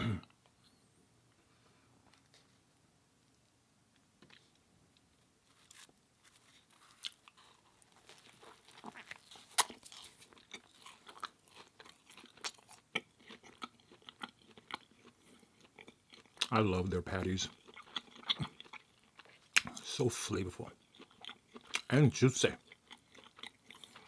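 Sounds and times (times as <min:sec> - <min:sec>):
close chewing and biting: 0:05.5 - 0:16.6, 0:17.2 - 0:20.0, 0:20.7 - 0:22.0, 0:22.6 - 0:24.0.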